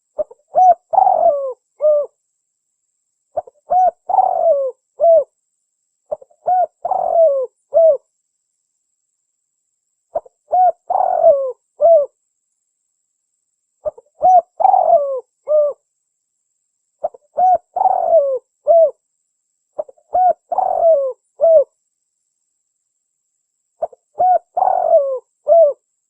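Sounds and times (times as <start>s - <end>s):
dove cooing: 0.0s - 2.2s, 3.4s - 5.3s, 6.1s - 8.0s, 10.1s - 12.2s, 13.8s - 15.8s, 17.0s - 19.0s, 19.8s - 21.7s, 23.8s - 25.8s.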